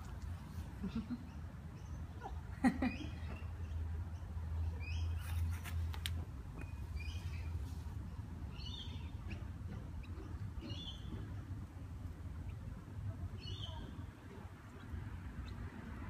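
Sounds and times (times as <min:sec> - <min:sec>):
bird chirping: 0:06.6 - 0:11.3.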